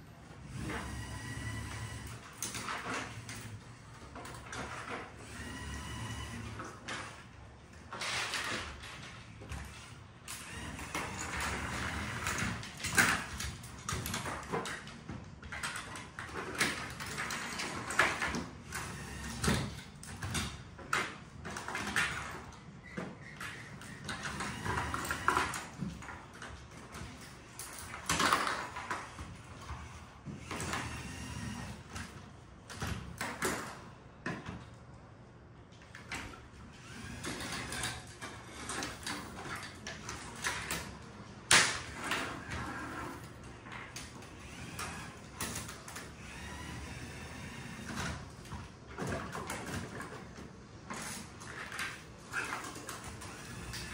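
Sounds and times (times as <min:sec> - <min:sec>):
electric motors whining: 0:00.4 - 0:03.9, 0:04.7 - 0:06.8, 0:09.5 - 0:14.4, 0:16.6 - 0:20.5, 0:23.3 - 0:26.2, 0:29.6 - 0:32.1, 0:36.7 - 0:39.3, 0:41.9 - 0:48.6, 0:52.3 - 0:53.9.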